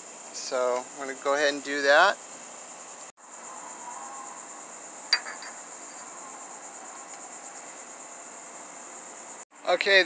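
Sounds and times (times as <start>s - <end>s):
crickets trilling: 0.0s - 10.0s
metallic clink: 5.1s - 6.0s.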